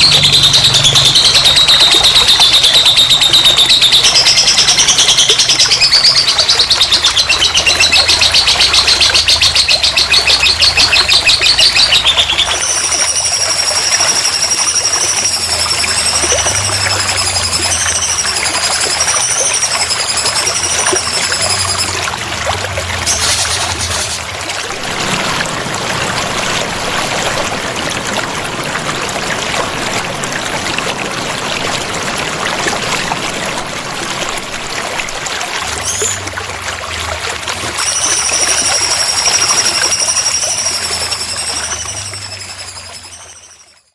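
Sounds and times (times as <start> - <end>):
high wavering whistle: 0.0 - 25.2, 37.6 - 43.9
water trickling and splashing: 0.0 - 43.9.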